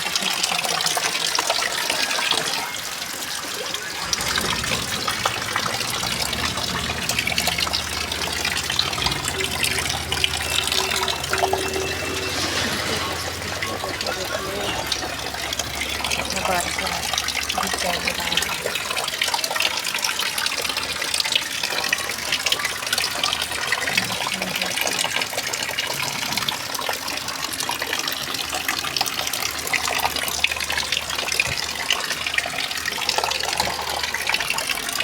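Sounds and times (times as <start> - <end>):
heavy rain pouring: 1.8 - 25.4.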